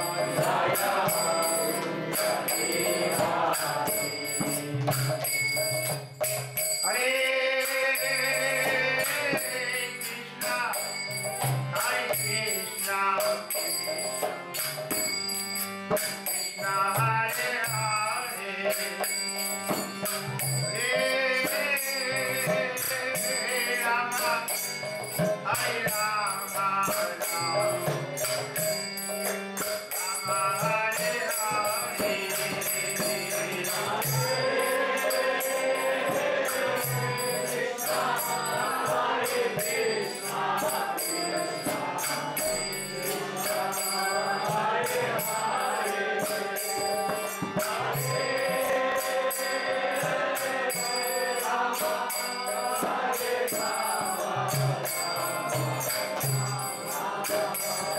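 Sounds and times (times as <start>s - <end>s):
voices chanting together: 0.0s - 5.4s, 20.4s - 57.9s
jingling metal percussion: 0.0s - 57.9s.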